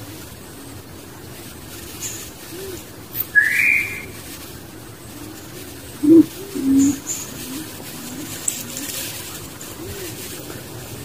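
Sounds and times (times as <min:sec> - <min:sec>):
faint low bird calls: 0:01.9 - 0:10.8
low hollow bird notes: 0:02.5 - 0:04.2, 0:05.0 - 0:08.4
bird rising whistle: 0:03.2 - 0:04.2.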